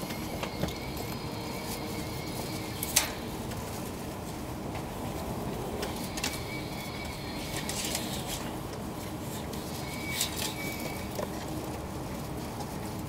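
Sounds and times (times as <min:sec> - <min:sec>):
train low rumble: 0:00.0 - 0:13.0
short high squeaks: 0:09.6 - 0:11.2.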